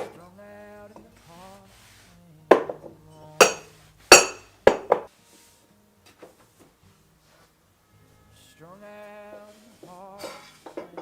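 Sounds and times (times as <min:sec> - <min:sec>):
soft background music: 0:00.0 - 0:11.0
glassware clinking: 0:02.6 - 0:05.0.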